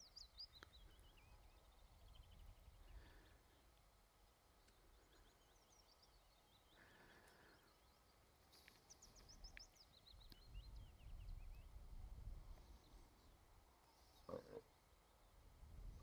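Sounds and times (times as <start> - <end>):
faint birdsong chirping: 0.0 - 16.0
wind rumble on microphone: 10.3 - 13.0, 15.5 - 16.0.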